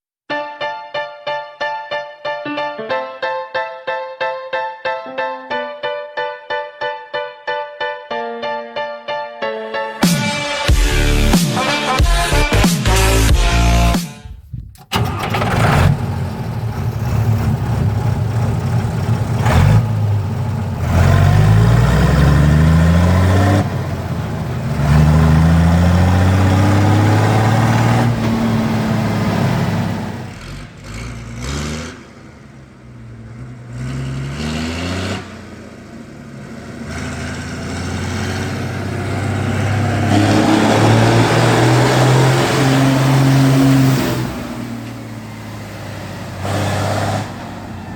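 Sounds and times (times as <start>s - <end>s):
tractor diesel engine revving: 10.7s - 47.9s.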